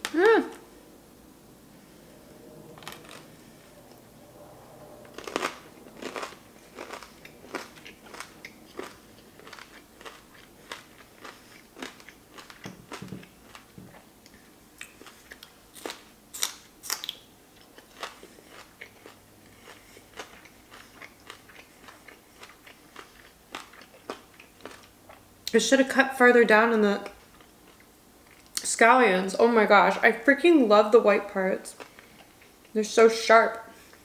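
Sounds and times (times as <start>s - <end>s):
crunchy chewing: 5.0s - 25.2s.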